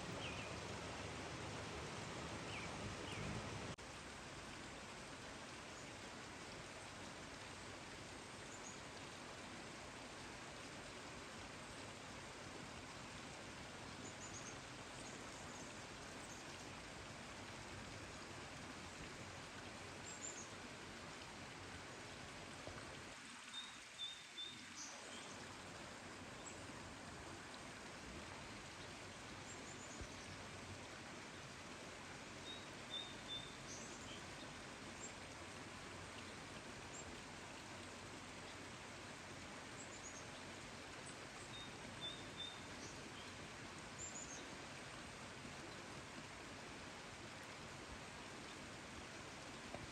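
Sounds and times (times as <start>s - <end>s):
small birds chirping: 0.1s - 0.7s, 2.4s - 3.6s.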